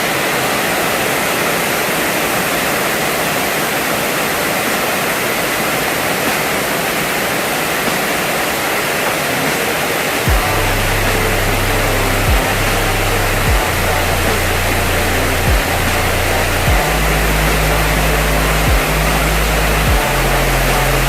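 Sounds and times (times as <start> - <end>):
floodwater rushing: 0.0 - 21.0.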